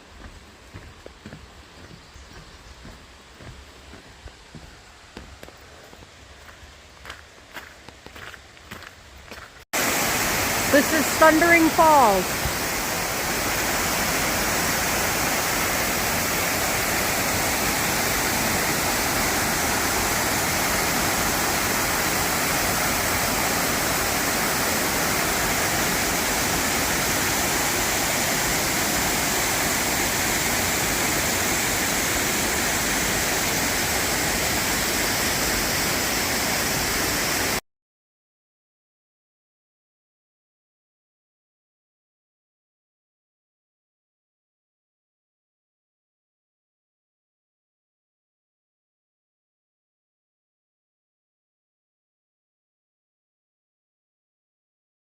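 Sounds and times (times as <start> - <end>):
waterfall roaring: 9.8 - 37.6.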